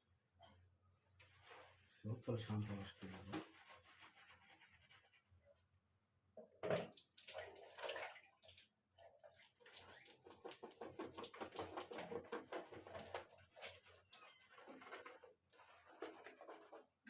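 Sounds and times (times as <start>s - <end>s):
hair washing squelching: 6.9s - 14.2s.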